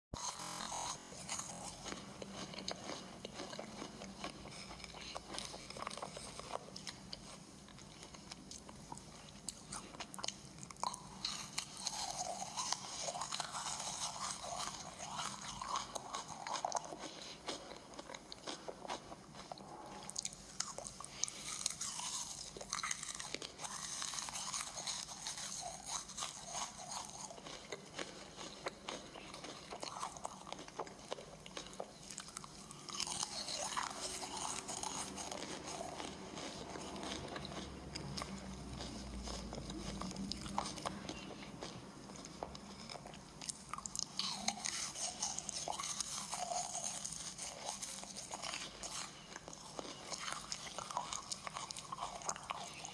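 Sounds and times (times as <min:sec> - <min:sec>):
crunchy cookies being chewed: 0:00.1 - 0:52.9.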